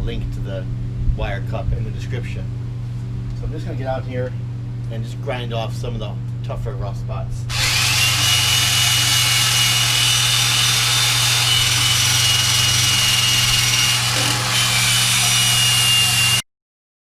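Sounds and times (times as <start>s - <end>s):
power drill wire brush grinding rust: 7.5s - 16.4s.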